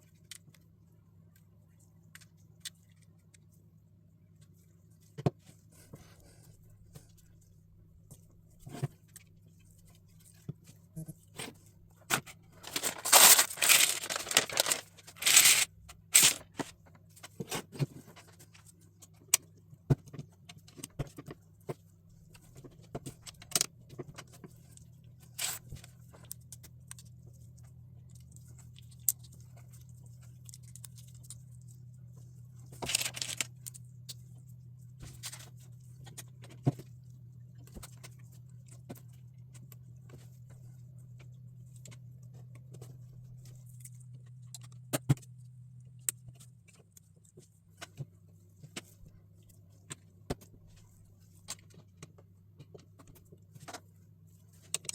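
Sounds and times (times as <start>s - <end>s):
crinkling tearing rustle: 12.6s - 16.6s, 32.8s - 33.5s
plastic bricks clicking: 12.7s - 16.4s.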